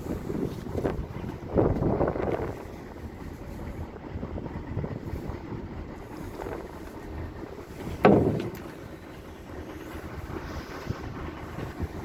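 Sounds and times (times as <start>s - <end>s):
steady rumble: 0.0s - 12.0s
wind buffeting microphone: 0.0s - 12.0s
loud thump: 7.9s - 8.8s.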